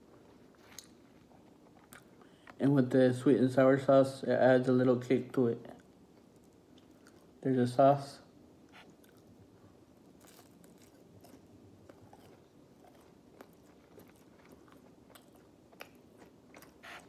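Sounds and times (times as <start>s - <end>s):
faint chewing: 0.2s - 2.6s, 5.7s - 7.4s, 8.6s - 17.0s
mouth clicks and crunches: 10.2s - 17.0s.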